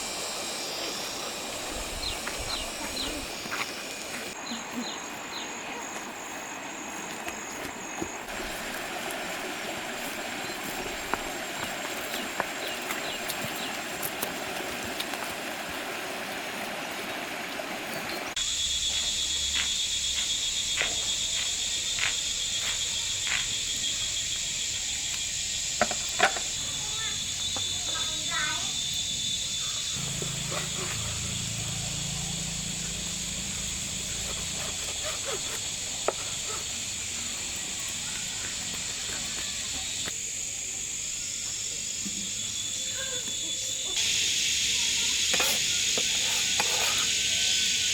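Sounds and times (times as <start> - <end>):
high-pitched insect drone: 0.0 - 14.0, 18.3 - 47.9
rush like flowing water: 0.0 - 18.4.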